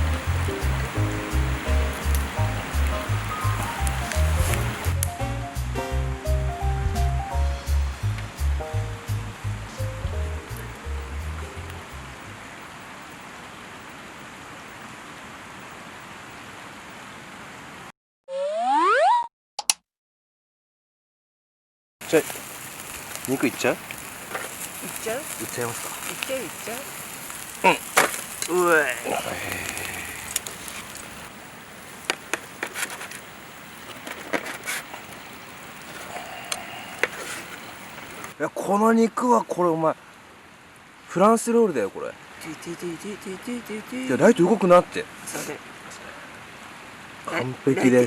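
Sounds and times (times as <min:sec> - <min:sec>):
background music: 0:00.0 - 0:12.2
campfire crackling: 0:00.0 - 0:17.0, 0:22.0 - 0:38.4, 0:39.2 - 0:48.0
steady rushing hiss: 0:00.0 - 0:17.6, 0:22.0 - 0:38.4, 0:41.1 - 0:48.0.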